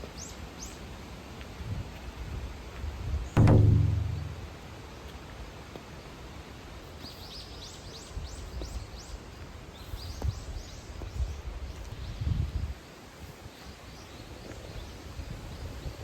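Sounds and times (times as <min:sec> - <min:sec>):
outdoor background noise: 0:00.0 - 0:16.0
faint low knock: 0:03.4 - 0:04.6.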